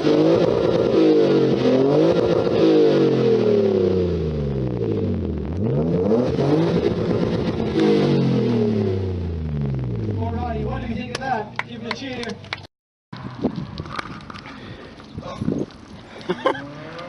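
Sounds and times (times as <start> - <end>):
car engine revving: 0.0 - 11.1, 16.4 - 17.0.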